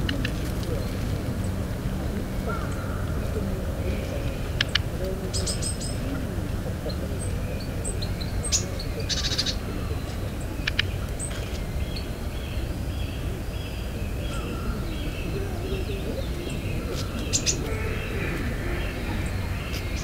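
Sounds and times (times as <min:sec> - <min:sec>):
bird clicking calls: 0:04.6 - 0:05.8, 0:10.6 - 0:11.6
bird high calls: 0:07.6 - 0:20.0.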